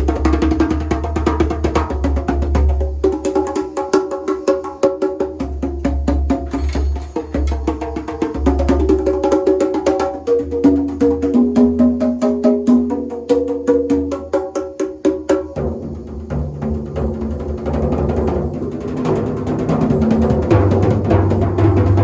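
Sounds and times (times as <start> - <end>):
pitched drum strikes: 17.8 - 22.0.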